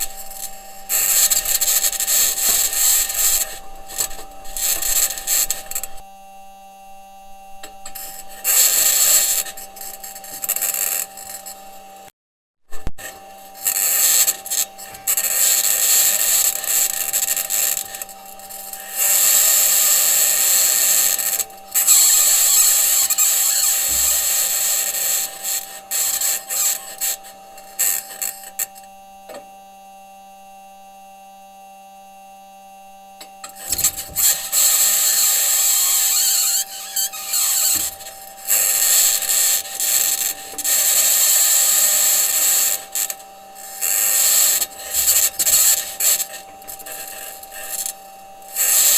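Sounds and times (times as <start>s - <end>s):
steady low hum: 0.0s - 12.1s.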